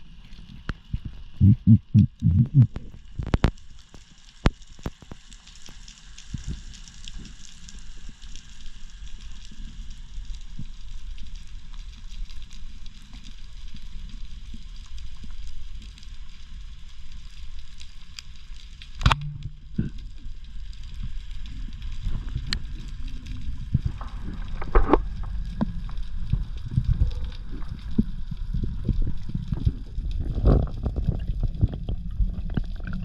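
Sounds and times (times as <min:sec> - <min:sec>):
underwater rumble of water: 0:00.0 - 0:33.0
faint crackling: 0:00.1 - 0:33.0
sharp snap: 0:19.0 - 0:19.5.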